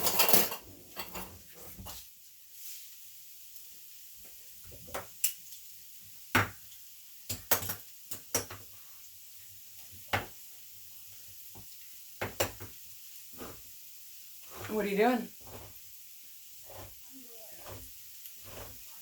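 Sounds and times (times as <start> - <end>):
kitchen knocks and clacks: 0.0 - 2.0, 7.3 - 8.7, 11.5 - 12.8.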